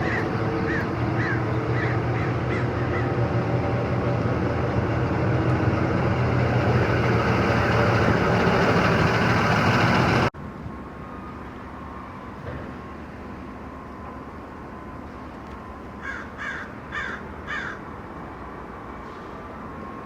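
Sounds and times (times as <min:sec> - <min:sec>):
heavy vehicle engine running: 0:00.0 - 0:10.4.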